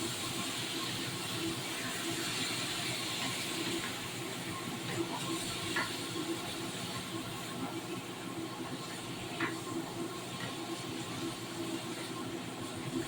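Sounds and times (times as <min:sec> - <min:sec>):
food hissing on stove: 0:00.0 - 0:04.4.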